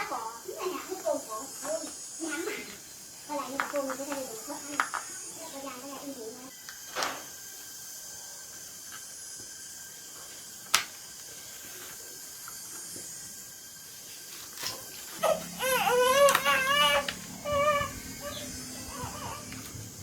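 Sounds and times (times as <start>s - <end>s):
faint steady hum: 0.0s - 20.0s
high wavering cry: 15.2s - 20.0s.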